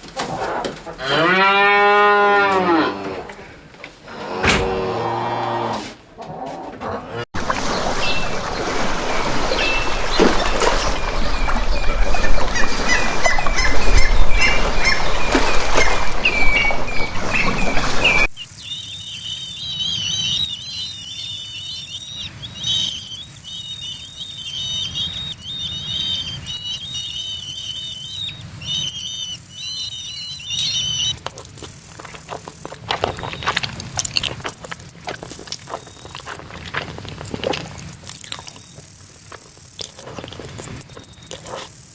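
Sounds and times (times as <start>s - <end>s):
birds chirping: 7.4s - 36.3s
warbling bird call: 7.6s - 33.5s.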